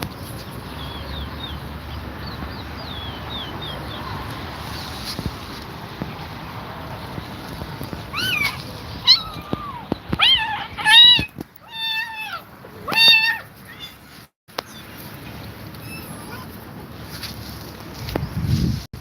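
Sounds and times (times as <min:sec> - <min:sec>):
kittens meowing: 0:08.1 - 0:14.0.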